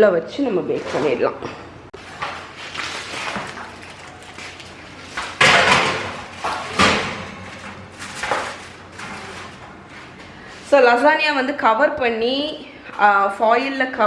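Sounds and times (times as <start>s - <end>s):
oven door opening and shutting: 4.8s - 10.8s
sharp knocks: 5.4s - 10.4s.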